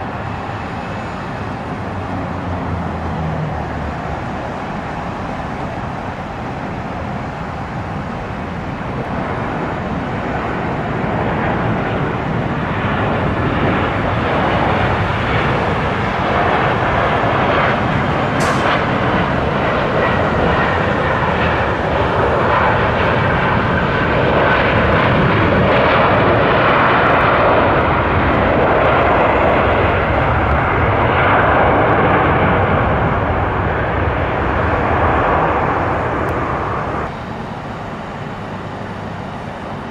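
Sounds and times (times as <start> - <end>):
airliner engine roar: 0.0 - 39.9
sharp click: 18.4 - 18.8.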